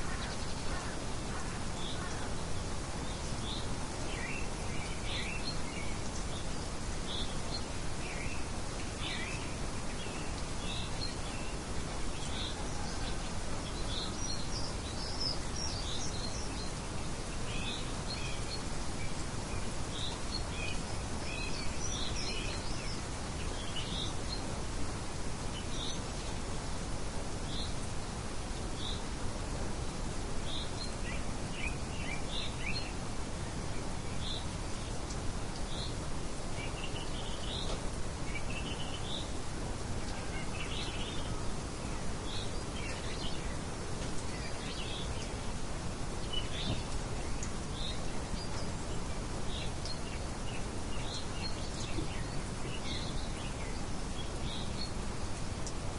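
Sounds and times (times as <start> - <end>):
light wind hiss: 0.0 - 55.9
small birds chirping: 0.0 - 55.9.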